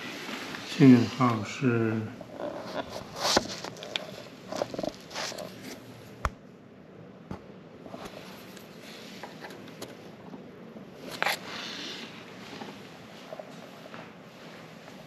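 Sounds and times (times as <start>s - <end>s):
low steady hiss: 0.0s - 2.4s
handling clicks and rustles: 2.3s - 5.8s.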